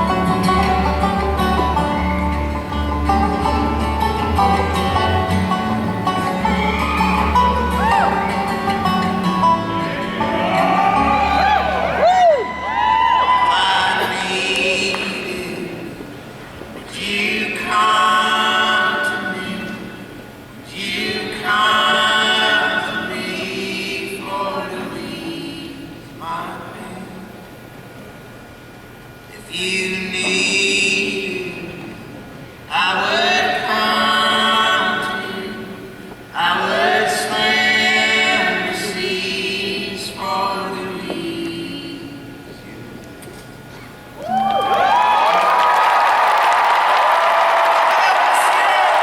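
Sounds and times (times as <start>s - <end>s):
voices singing in harmony: 9.5s - 16.1s, 16.8s - 20.1s, 20.7s - 27.1s, 32.7s - 42.3s.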